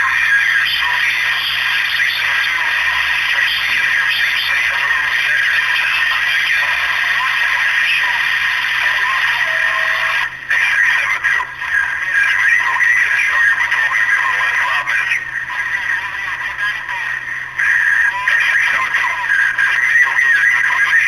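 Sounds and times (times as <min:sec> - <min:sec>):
distorted radio voice transmission: 0:00.0 - 0:21.0.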